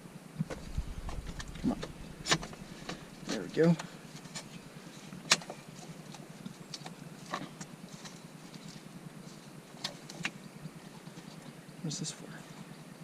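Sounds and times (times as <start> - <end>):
light clicks and knocks of parts: 2.2 - 11.6.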